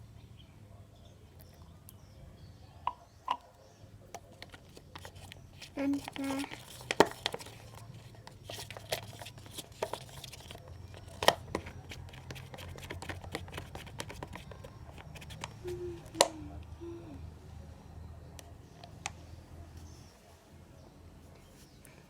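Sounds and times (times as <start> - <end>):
spoon stirring sticky slime: 4.2 - 16.3
spoon knocking plastic cup: 11.0 - 16.3.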